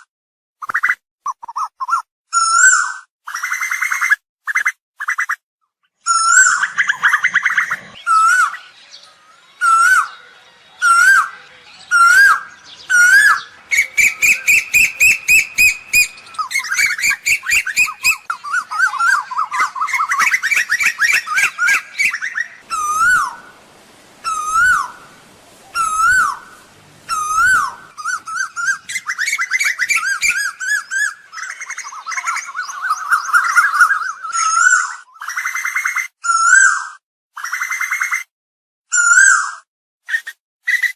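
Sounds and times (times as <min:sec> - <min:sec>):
bird calling: 0:06.0 - 0:36.8.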